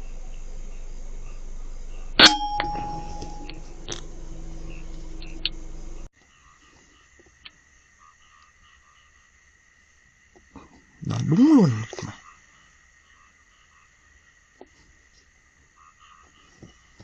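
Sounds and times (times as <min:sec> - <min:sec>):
night insects chirring: 0:00.0 - 0:17.0
air rifle shot with metallic ring: 0:02.2 - 0:03.7.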